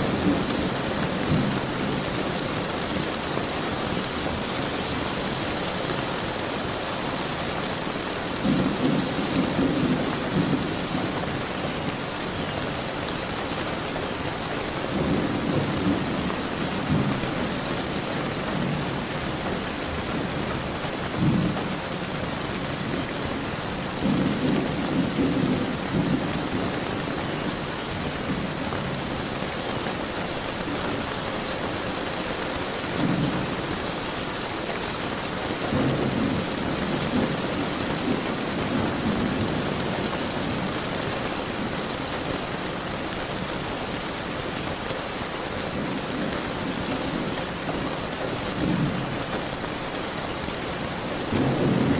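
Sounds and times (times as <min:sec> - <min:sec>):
thunder rumbling: 0:00.0 - 0:05.0, 0:08.2 - 0:12.6, 0:14.7 - 0:29.3, 0:45.6 - 0:51.9
rain falling: 0:00.0 - 0:51.9.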